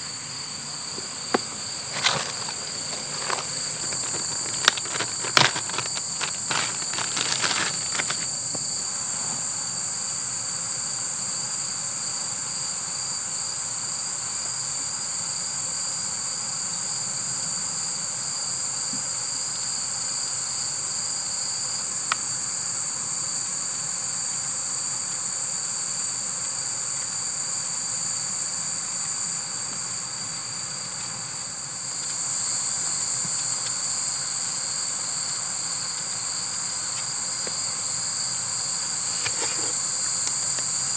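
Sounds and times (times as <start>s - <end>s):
shrill insect trill: 0.0s - 10.4s, 19.6s - 40.9s
low pulsing insect chirp: 0.0s - 40.9s.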